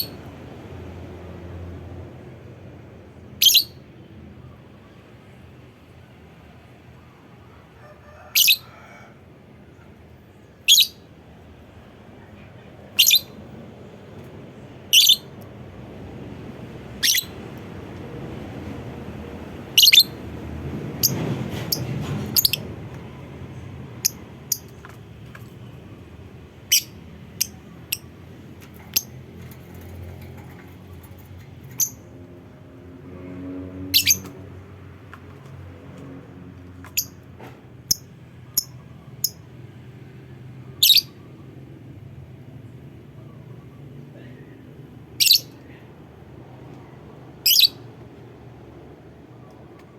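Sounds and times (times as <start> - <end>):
lovebird high calls: 3.4 - 3.8, 8.3 - 8.7, 10.6 - 11.0, 13.0 - 13.4, 14.9 - 15.4, 17.0 - 17.4, 19.8 - 20.2, 22.3 - 22.6, 26.6 - 28.1, 33.9 - 34.3, 40.8 - 41.2, 45.2 - 45.6, 47.4 - 47.8.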